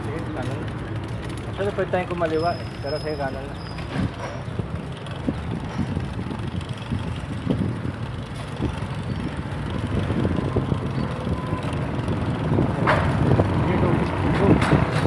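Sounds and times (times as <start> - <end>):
bicycle rumbling on pavement: 0.0 - 15.0
wind on microphone: 3.8 - 15.0.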